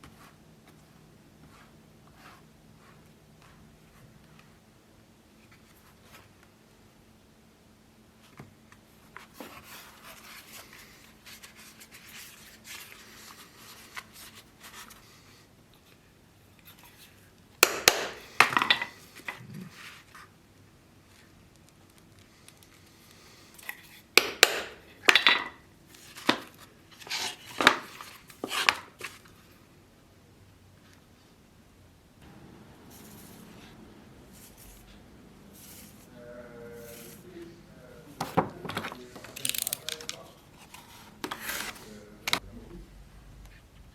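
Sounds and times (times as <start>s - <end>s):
hard objects clattering: 17.6s - 19.7s, 24.2s - 29.2s
faint scraping: 32.2s - 42.8s.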